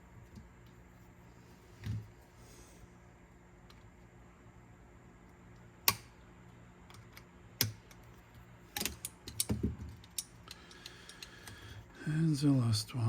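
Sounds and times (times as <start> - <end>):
small metal parts clicking: 8.8 - 11.6.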